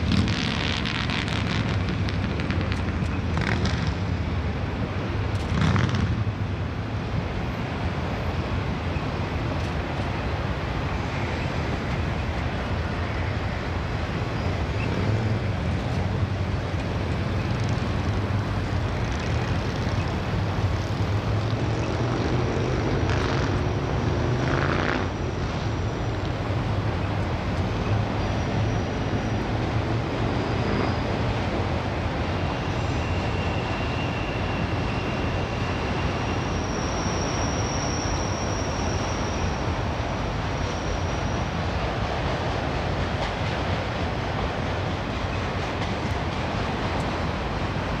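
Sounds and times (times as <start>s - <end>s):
train wheels rumbling on rail: 0.0s - 48.0s
high wheel squeal: 13.2s - 15.6s, 22.6s - 31.6s, 32.2s - 42.1s.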